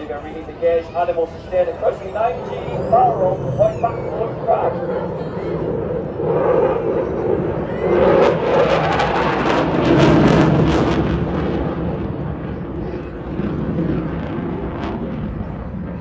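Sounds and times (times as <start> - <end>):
jet passing: 0.0 - 16.0.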